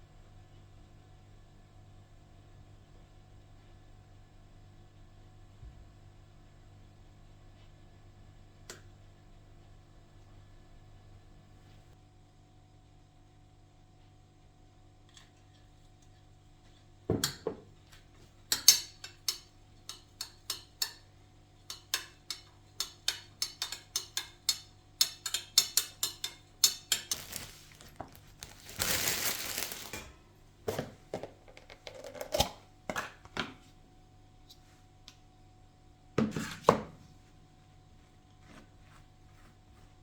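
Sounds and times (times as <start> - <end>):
dishes and utensils clinking: 18.5 - 21.1, 21.7 - 33.2.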